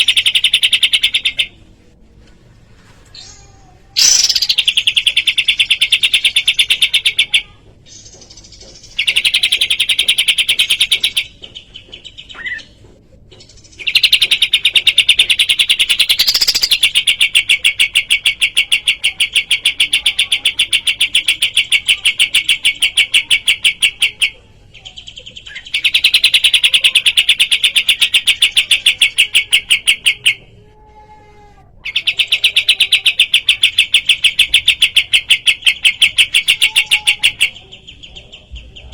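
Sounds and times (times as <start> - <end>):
songbird trilling: 4.0 - 7.4, 13.8 - 17.8.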